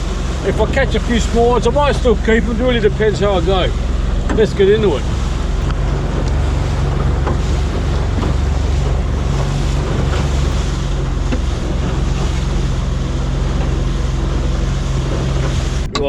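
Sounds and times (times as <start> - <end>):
boat engine running: 0.0 - 16.0
water rushing past hull: 0.0 - 16.0
wind buffeting microphone: 0.0 - 16.0.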